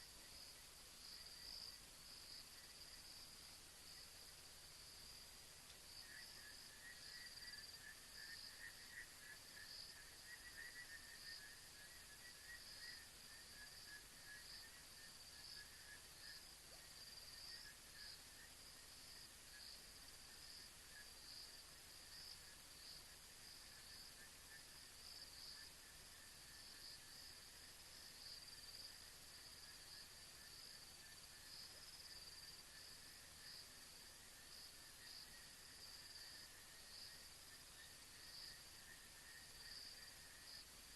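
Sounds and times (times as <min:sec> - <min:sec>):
insects chirping high-pitched: 0:00.0 - 0:40.9.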